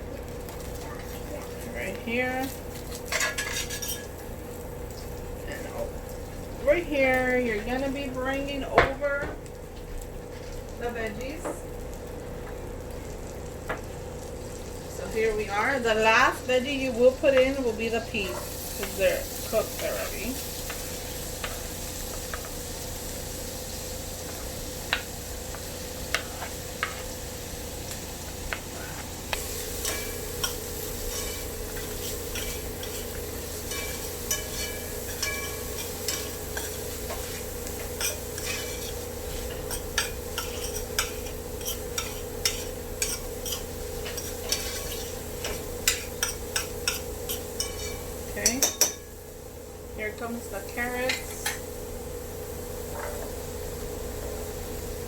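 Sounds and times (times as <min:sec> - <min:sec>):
vegetables sizzling in a frying pan: 0:00.0 - 0:55.0
utensil clicking and scraping pan: 0:29.8 - 0:49.0.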